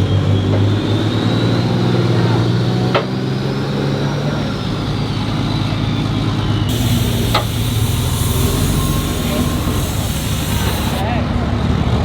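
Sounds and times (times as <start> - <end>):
truck engine running: 6.7 - 11.0.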